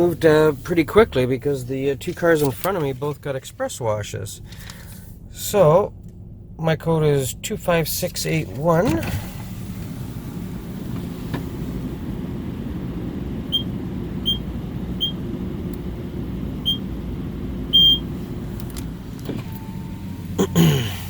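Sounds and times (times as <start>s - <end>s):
idling car hum: 0.0s - 21.0s
keypad beeping: 16.6s - 16.8s, 17.7s - 18.0s.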